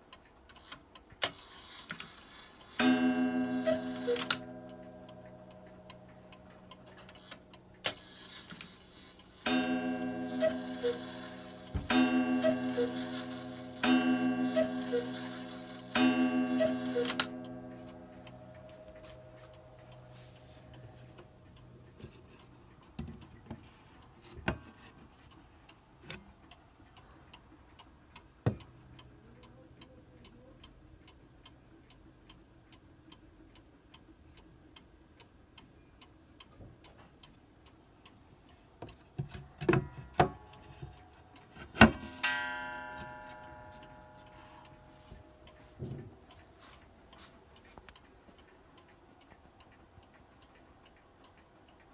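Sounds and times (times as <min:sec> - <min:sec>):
clock ticking: 0:00.0 - 0:24.2, 0:25.2 - 0:51.9
cuckoo clock call: 0:02.2 - 0:20.9
clock ringing note: 0:02.7 - 0:06.4, 0:08.2 - 0:20.3, 0:41.9 - 0:45.7.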